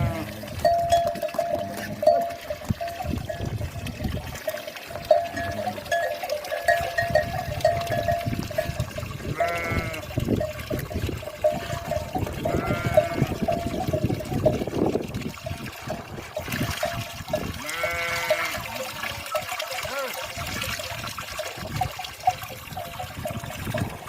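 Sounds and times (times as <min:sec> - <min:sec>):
animal bleating: 0:00.0 - 0:00.5, 0:09.3 - 0:10.1, 0:12.4 - 0:13.4, 0:17.6 - 0:18.7
livestock bells tinkling: 0:00.0 - 0:24.0.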